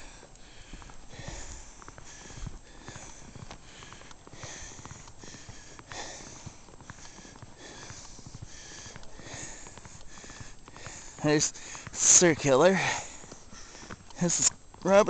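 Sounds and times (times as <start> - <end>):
footsteps crunching in snow: 0.0 - 15.0.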